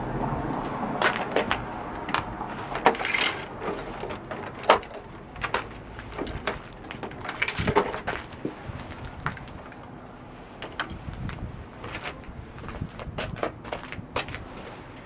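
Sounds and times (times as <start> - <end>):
plastic scrape: 1.0 - 9.8.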